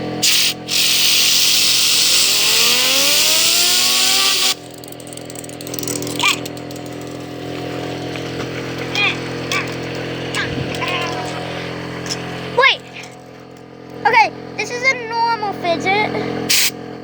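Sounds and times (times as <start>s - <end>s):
steady hum: 0.0s - 17.0s
compressed air hissing: 0.2s - 4.7s, 16.5s - 16.8s
fidget spinner whine rising: 0.6s - 14.7s.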